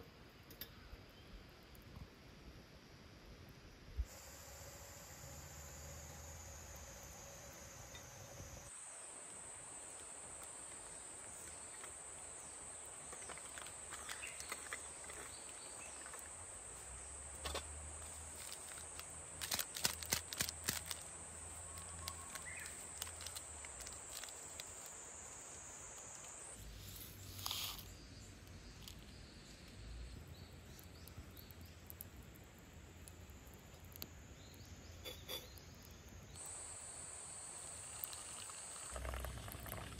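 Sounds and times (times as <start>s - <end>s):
high-pitched insect chorus: 4.1s - 30.8s, 34.1s - 39.9s
sharp clicks and rustles: 17.4s - 21.1s, 21.8s - 25.0s.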